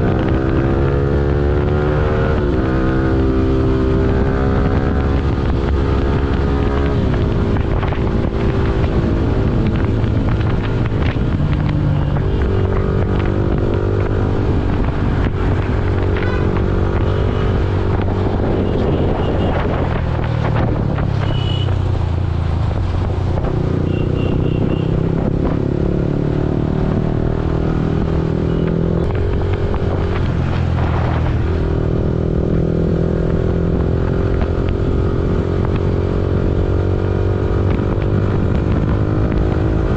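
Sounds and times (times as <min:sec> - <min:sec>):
motorcycle engine running: 0:03.4 - 0:30.7.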